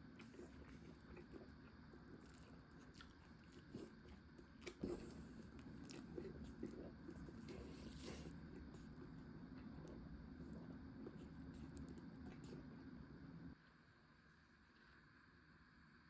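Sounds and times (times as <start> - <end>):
person chewing: 0.0 - 12.7.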